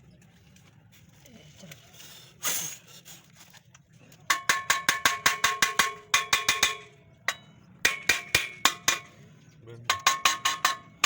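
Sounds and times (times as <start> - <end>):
hammer tapping ringing metal: 4.3 - 9.1, 9.9 - 11.0.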